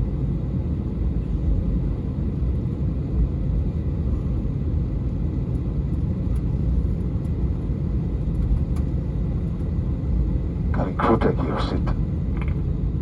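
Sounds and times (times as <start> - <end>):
aircraft cabin engine rumble: 0.0 - 13.0.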